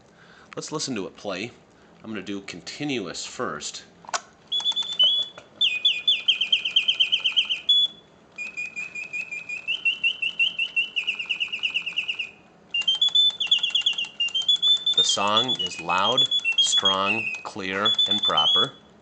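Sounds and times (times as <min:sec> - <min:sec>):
mechanical birdsong trills: 0:04.5 - 0:19.0.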